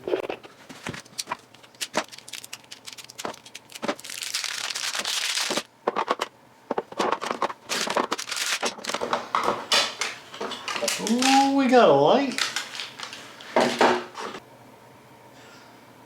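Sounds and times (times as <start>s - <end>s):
packaging crinkling and tearing: 0.8s - 6.2s, 7.0s - 9.1s, 10.0s - 13.6s.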